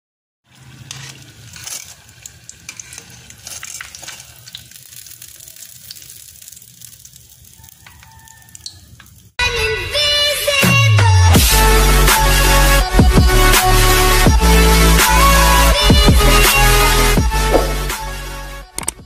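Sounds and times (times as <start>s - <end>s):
food frying in hot oil: 0.4s - 9.4s.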